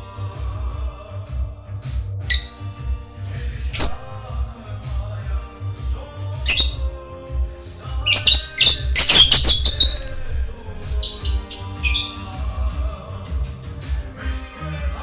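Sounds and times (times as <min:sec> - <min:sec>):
parrot squawking and chirping: 0:02.3 - 0:02.6, 0:03.8 - 0:04.2, 0:06.5 - 0:06.8, 0:08.1 - 0:12.2.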